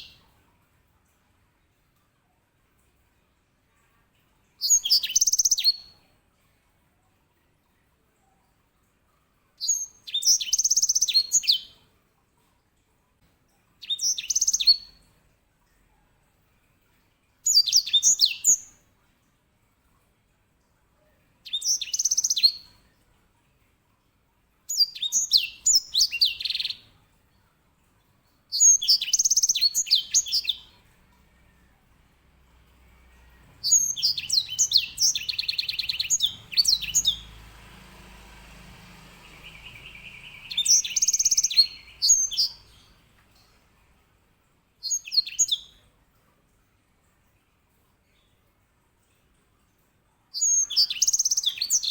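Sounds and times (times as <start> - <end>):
finch singing trilling song: 4.6 - 5.9, 9.6 - 11.7, 13.8 - 14.9, 17.5 - 18.7, 21.5 - 22.7, 24.7 - 26.8, 28.6 - 30.8, 33.4 - 37.8, 38.4 - 43.0, 44.8 - 45.7, 50.4 - 51.9.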